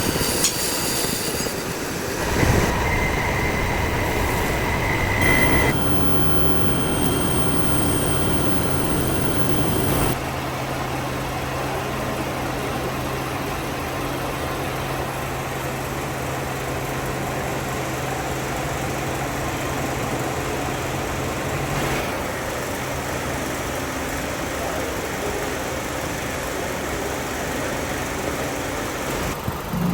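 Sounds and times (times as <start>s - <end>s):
high-pitched machine whine: 0.0s - 10.2s
workshop machinery humming: 1.9s - 10.2s.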